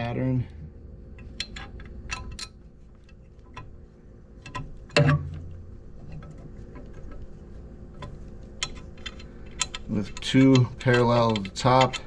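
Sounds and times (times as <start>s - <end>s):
metallic clicks of hand tools: 8.6s - 12.0s.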